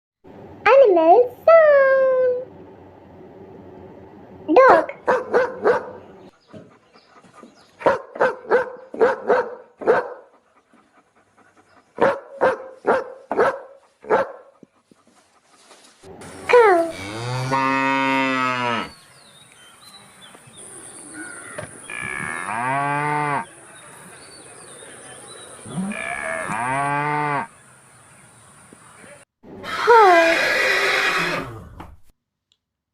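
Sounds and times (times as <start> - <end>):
dog barking: 5.0 - 6.0, 7.8 - 10.3, 12.0 - 14.5
cow mooing: 16.7 - 19.0, 21.2 - 23.5, 25.6 - 27.5.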